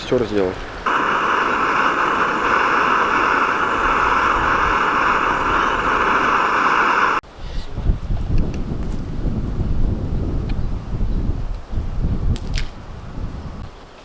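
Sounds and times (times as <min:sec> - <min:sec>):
gas stove burner hissing: 0:00.8 - 0:07.2.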